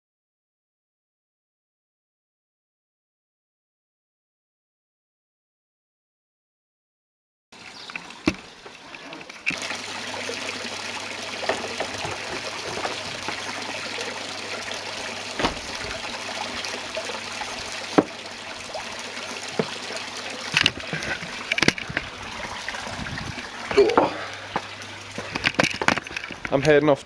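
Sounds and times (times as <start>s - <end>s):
running water: 7.6s - 27.0s.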